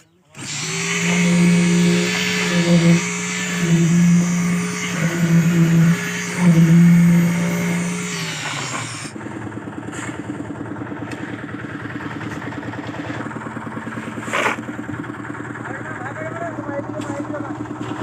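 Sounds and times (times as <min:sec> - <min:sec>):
engine-driven machine humming: 0:00.0 - 0:18.0
engine chugging at idle: 0:09.1 - 0:18.0.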